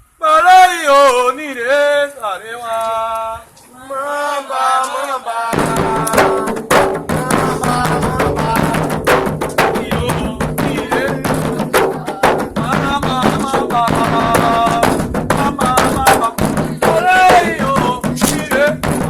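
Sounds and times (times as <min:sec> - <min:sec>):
voices singing a chant: 0:00.2 - 0:19.0
rapid hand drumming: 0:05.5 - 0:19.0.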